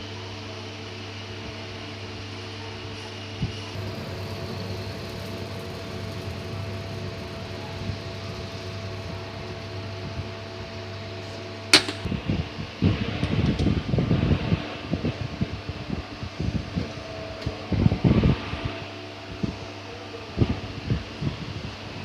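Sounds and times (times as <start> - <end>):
lathe running with steady hum: 3.7 - 12.1.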